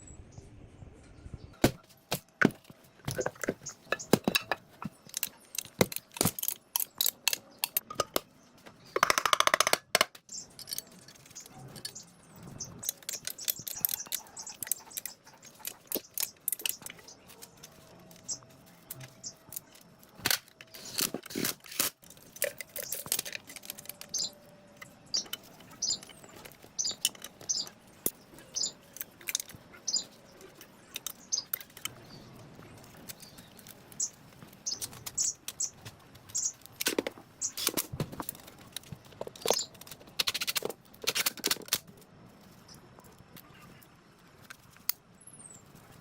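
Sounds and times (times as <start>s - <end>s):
hand tools clicking on metal: 3.1s - 8.2s, 12.8s - 32.0s.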